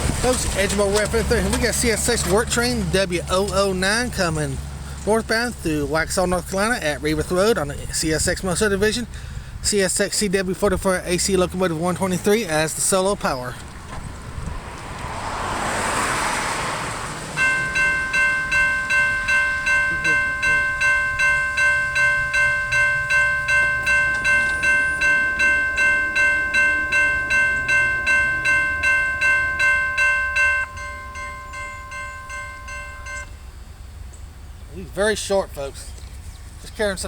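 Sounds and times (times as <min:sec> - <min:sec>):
passing train rumble: 0:00.0 - 0:35.8
crossing bell ringing rapidly: 0:00.2 - 0:09.1, 0:17.4 - 0:34.4.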